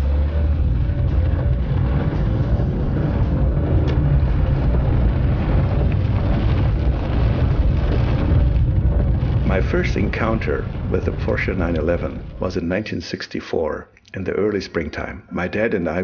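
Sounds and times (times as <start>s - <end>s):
car engine running: 0.0s - 12.6s.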